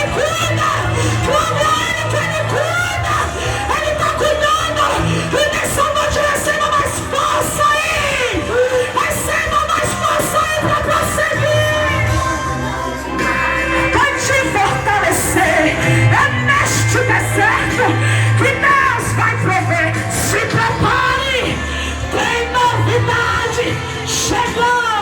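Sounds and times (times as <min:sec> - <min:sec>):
woman singing gospel song: 0:00.0 - 0:12.2, 0:13.8 - 0:25.0
instrumental accompaniment with bass: 0:09.8 - 0:25.0.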